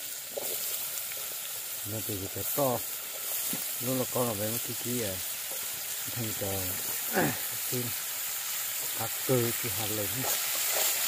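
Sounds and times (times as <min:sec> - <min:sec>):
food frying in hot oil: 0:00.0 - 0:11.0.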